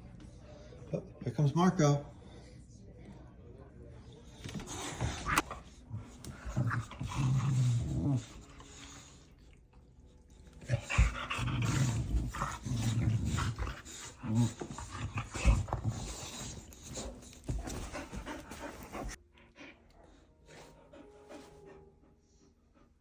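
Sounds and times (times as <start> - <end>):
dog panting: 4.4 - 23.0.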